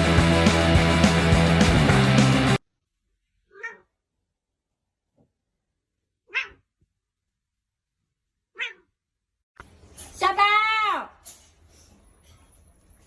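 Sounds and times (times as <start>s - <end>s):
background music: 0.0s - 2.6s
short animal calls: 6.3s - 6.7s, 8.6s - 8.9s.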